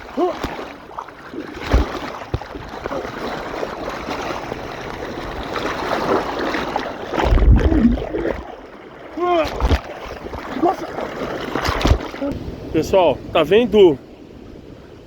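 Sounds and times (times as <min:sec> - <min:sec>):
river water rushing: 0:00.0 - 0:15.0
low rumbling bumps: 0:07.2 - 0:08.4.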